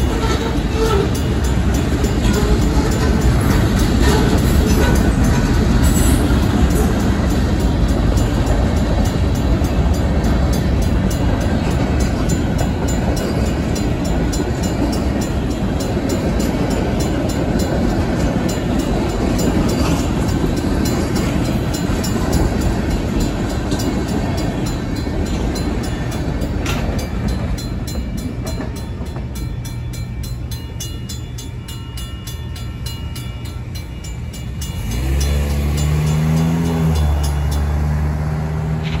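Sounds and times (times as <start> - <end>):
crossing bell ringing: 0.0 - 39.0
freight train wheels rolling: 0.0 - 39.0
vehicle engine pulling away: 34.7 - 39.0.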